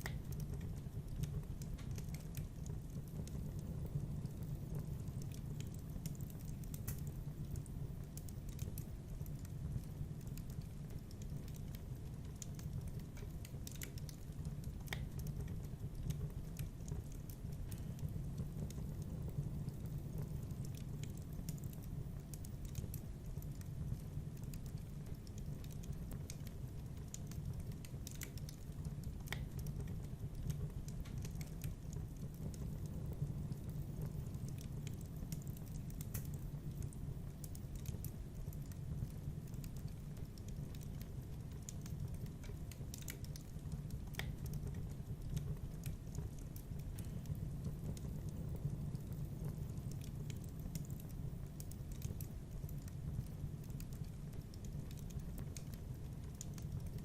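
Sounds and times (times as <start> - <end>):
fire crackles and pops: 0.0 - 57.0
fire low rumble: 0.0 - 57.0.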